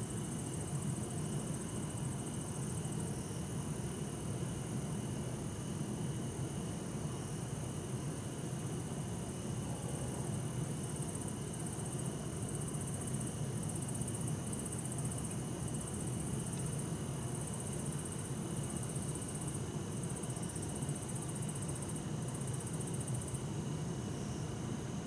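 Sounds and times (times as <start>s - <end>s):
crickets chirping: 0.0s - 25.0s
steady insect trills: 0.0s - 25.0s.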